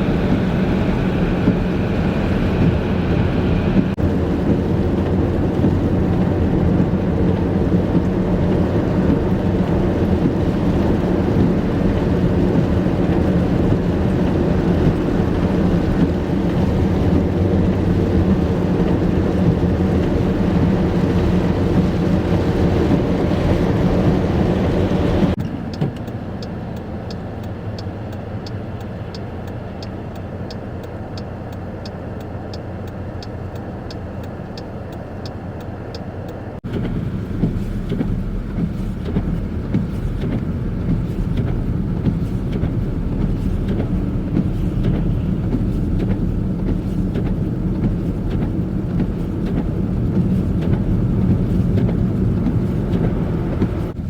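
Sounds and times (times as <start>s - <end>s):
road vehicle engines: 0.0s - 54.0s
traffic noise: 0.0s - 54.0s
regular light ticking: 25.4s - 41.6s.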